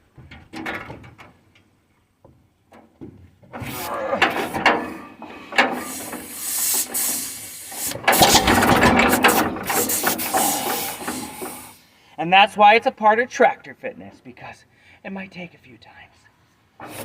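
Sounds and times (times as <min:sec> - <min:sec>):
mechanical ratcheting and clanking: 0:04.2 - 0:11.8.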